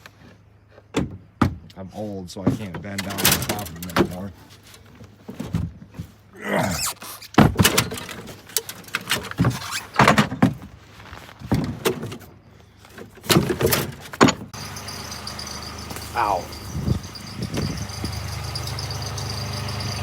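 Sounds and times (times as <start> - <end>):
tools clunking and thudding: 0.7 - 1.7, 11.4 - 19.3
steady high whine: 14.6 - 20.0.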